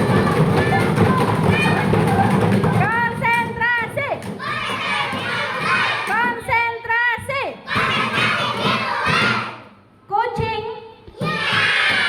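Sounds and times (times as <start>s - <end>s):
children shouting in unison: 4.4s - 6.1s, 7.7s - 9.6s, 11.2s - 12.0s.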